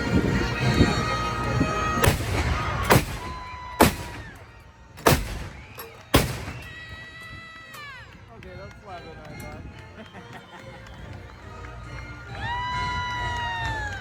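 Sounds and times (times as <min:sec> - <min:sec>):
background music: 0:00.0 - 0:14.0
loud cannon shots: 0:02.0 - 0:07.0.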